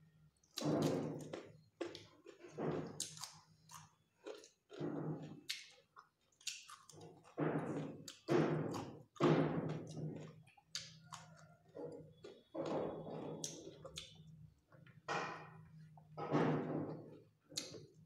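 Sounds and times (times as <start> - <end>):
chewing crunchy cucumber: 0.4 - 14.4.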